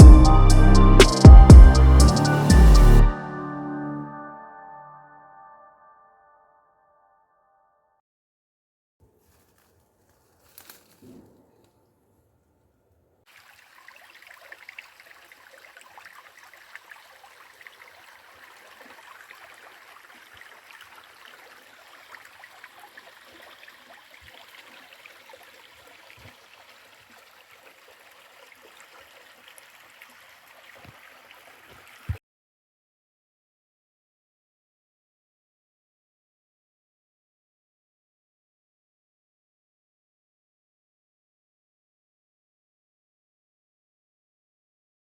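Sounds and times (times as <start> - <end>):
stream trickling over rocks: 13.3 - 32.2.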